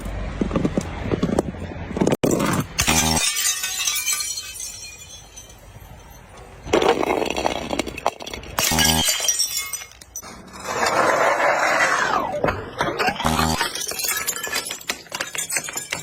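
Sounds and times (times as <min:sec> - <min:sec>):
glass bottles crushing and shattering: 0:02.2 - 0:10.9, 0:12.4 - 0:16.0.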